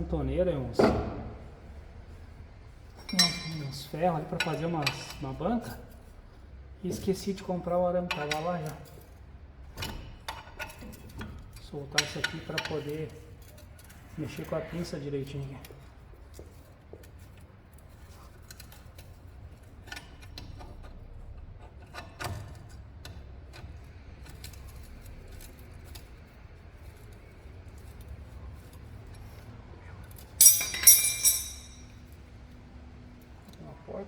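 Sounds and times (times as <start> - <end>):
loud metallic clatter: 30.4 - 31.9.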